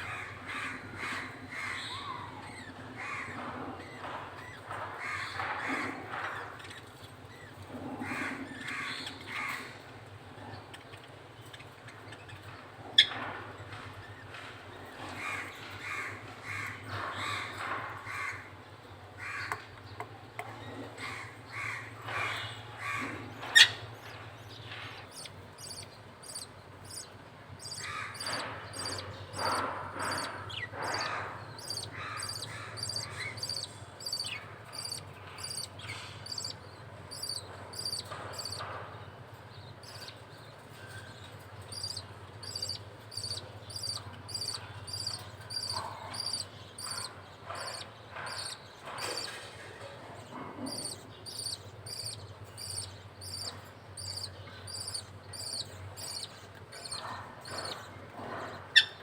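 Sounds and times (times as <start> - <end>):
budgie chick begging calls: 25.0 - 38.6, 41.6 - 49.4, 50.4 - 59.0
fast high-pitched chirping: 25.1 - 38.6, 41.7 - 49.4, 50.7 - 57.8.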